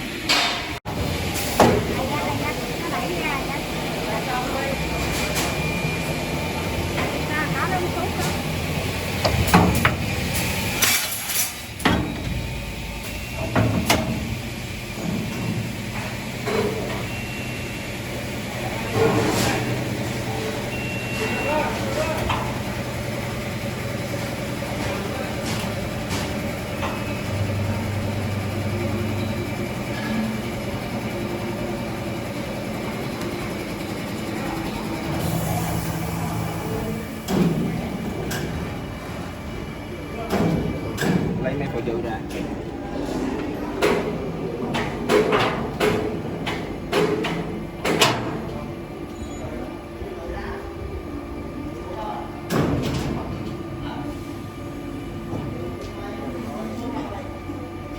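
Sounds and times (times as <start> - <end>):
machine hum: 0.0 - 19.0, 19.6 - 45.0.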